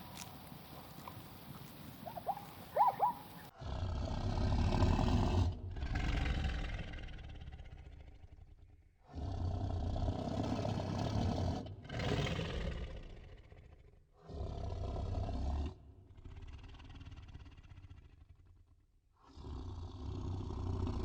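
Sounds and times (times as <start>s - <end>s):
large animal roaring: 3.6s - 8.4s.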